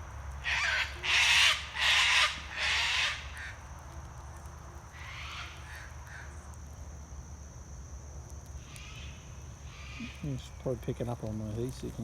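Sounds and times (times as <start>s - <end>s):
magpies rasping alarm calls: 0.4s - 3.5s.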